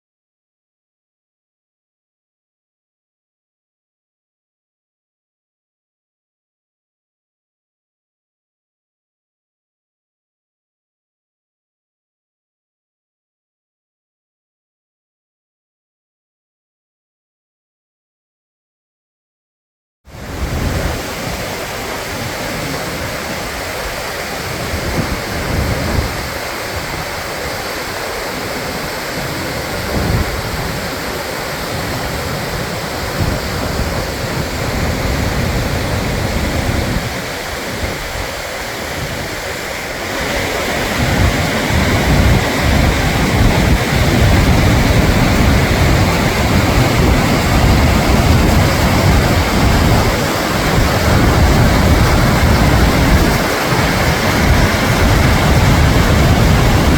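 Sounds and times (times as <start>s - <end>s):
wind gusting on microphone: 20.1s - 56.9s
waterfall rushing: 20.2s - 56.9s.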